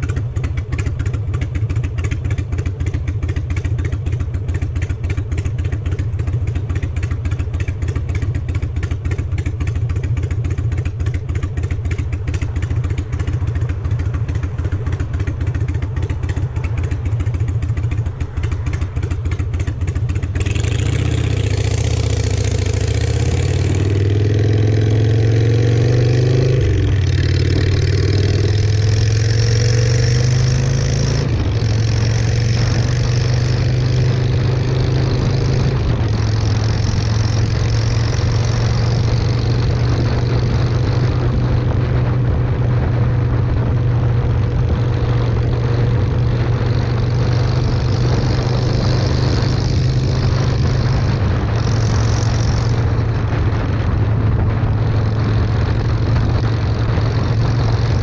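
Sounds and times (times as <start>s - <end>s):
motorcycle engine revving: 0.0s - 58.0s
wind on microphone: 8.8s - 58.0s.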